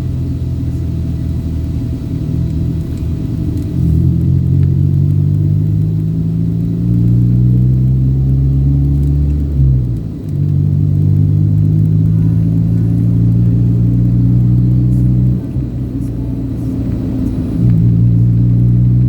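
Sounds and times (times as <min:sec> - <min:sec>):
road rumble: 0:00.0 - 0:19.0
vehicle engine running: 0:00.0 - 0:19.0.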